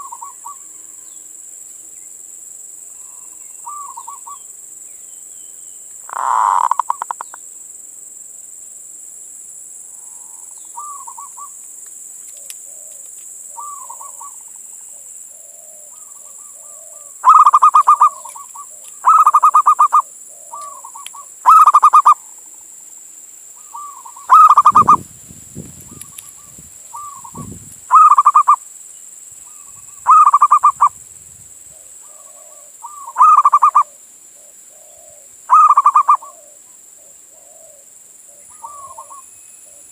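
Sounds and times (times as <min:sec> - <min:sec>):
dove cooing: 0:00.0 - 0:00.6, 0:03.1 - 0:04.4, 0:06.1 - 0:07.3, 0:13.6 - 0:22.3, 0:23.6 - 0:25.0, 0:25.9 - 0:28.6, 0:29.5 - 0:31.0, 0:31.7 - 0:39.9.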